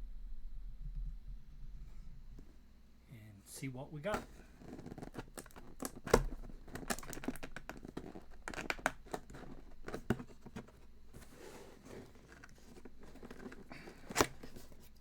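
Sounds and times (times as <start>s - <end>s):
tape and packaging rustling: 4.0s - 15.0s
cardboard box being opened: 4.1s - 15.0s.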